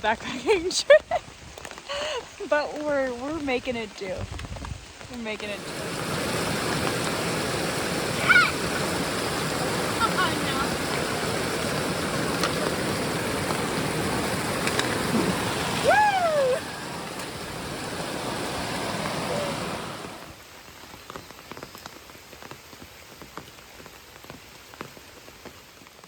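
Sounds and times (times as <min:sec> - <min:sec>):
rushing water and rain: 0:00.0 - 0:26.0
raindrops tapping on a surface: 0:00.2 - 0:08.0, 0:08.8 - 0:16.0, 0:20.6 - 0:26.0
rising and falling whine: 0:05.6 - 0:20.4.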